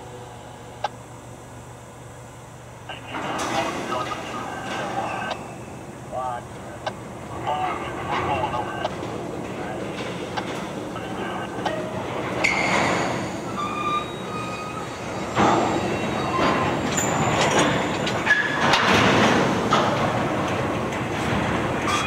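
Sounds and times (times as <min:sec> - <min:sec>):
train wheels rumbling on rail: 0:06.2 - 0:22.0
high wheel squeals: 0:12.4 - 0:18.7.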